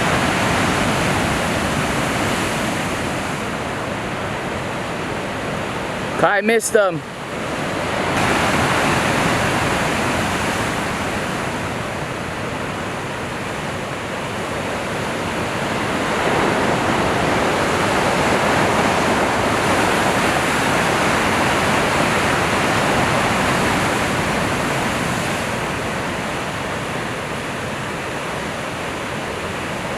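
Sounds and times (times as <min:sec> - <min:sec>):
surf and whitewater rushing: 0:00.0 - 0:29.9.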